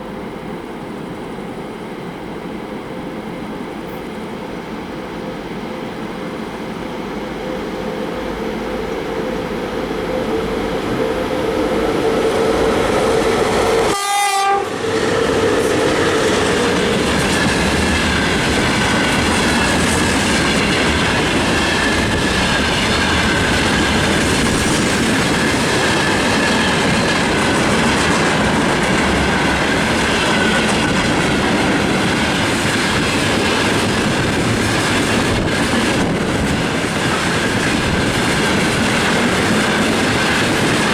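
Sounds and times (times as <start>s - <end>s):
freight train rumbling past: 0.0s - 40.9s
locomotive horn: 13.6s - 15.7s.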